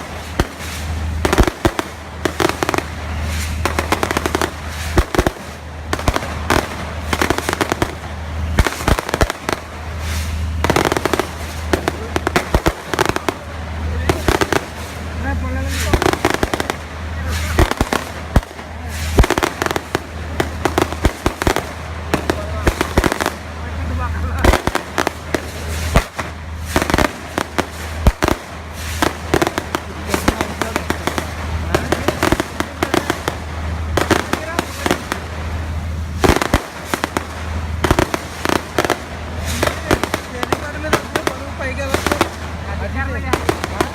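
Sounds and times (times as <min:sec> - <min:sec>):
fireworks crackling bangs: 0:00.0 - 0:43.9
heavy firework booms: 0:00.0 - 0:43.9.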